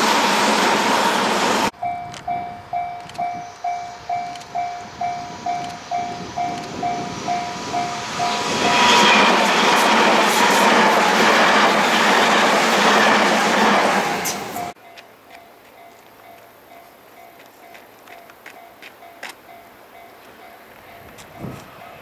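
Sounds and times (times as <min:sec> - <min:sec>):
train rushing past: 0:00.0 - 0:14.8.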